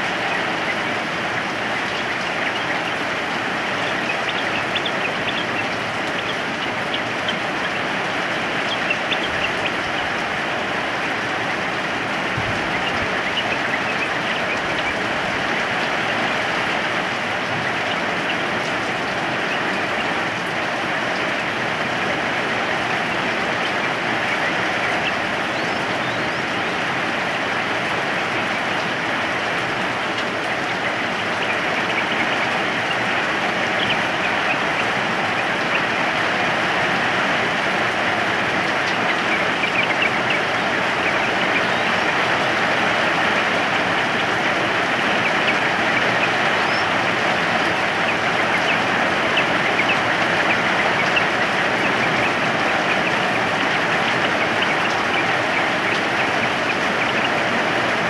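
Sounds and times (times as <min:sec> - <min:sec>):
bird chirping: 0:00.0 - 0:11.4, 0:12.4 - 0:16.0, 0:17.4 - 0:20.2, 0:22.7 - 0:26.8, 0:30.1 - 0:36.0, 0:38.6 - 0:42.6, 0:43.4 - 0:57.6
rain falling: 0:00.0 - 0:58.0.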